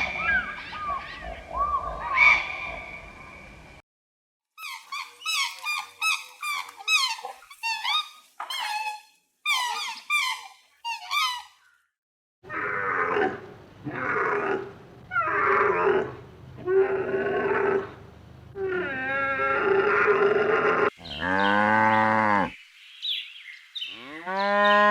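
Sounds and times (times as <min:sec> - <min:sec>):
longer low animal calls: 0:00.0 - 0:03.5
high-pitched animal squeaks: 0:04.6 - 0:11.6.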